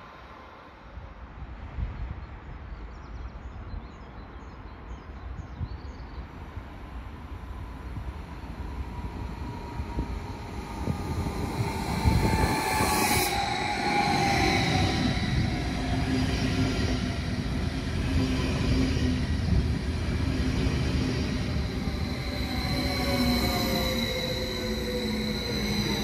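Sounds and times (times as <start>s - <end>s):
train wheels rumbling on track: 6.6s - 26.0s.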